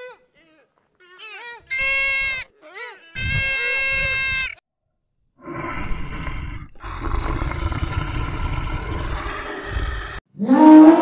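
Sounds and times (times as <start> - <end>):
cheetah growling: 5.4 - 10.2.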